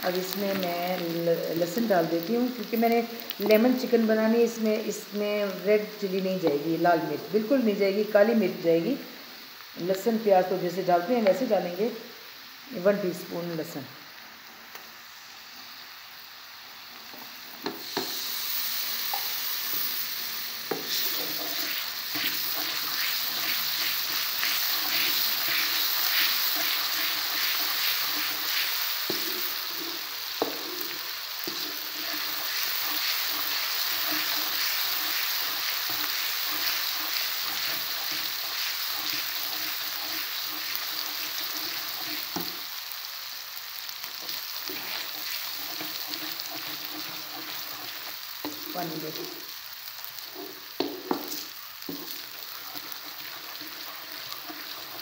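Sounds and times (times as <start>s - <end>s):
onions sizzling in hot oil: 0.0s - 55.0s
spatula scraping pan: 20.7s - 42.5s, 44.2s - 48.6s, 50.3s - 55.0s.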